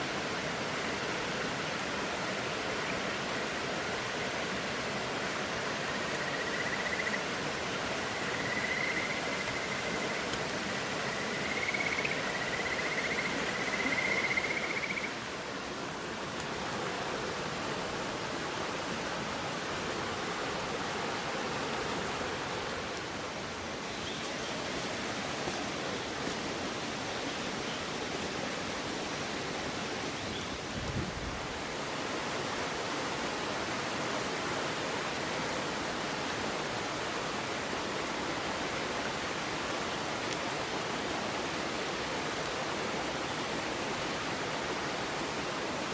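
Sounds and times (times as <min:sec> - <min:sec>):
river water rushing: 0:00.0 - 0:45.9
high wavering whistle tone: 0:08.2 - 0:15.1.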